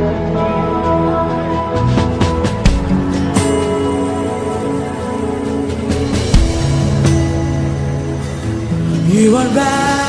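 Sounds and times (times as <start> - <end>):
gospel band playing held chords: 0.0 - 10.0.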